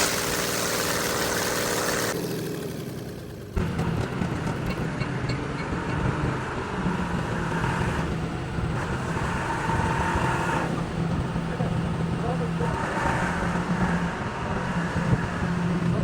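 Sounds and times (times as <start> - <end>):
engine humming: 0.0 - 16.0
traffic noise: 3.4 - 16.0.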